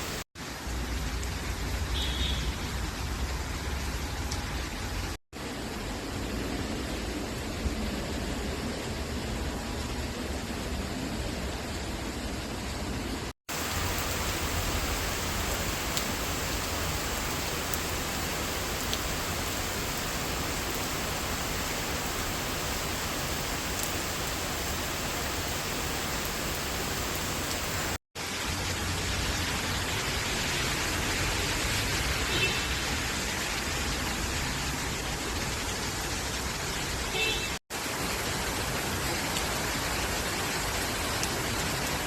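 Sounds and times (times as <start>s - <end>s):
rain falling on leaves: 0.0s - 10.9s, 13.5s - 42.0s.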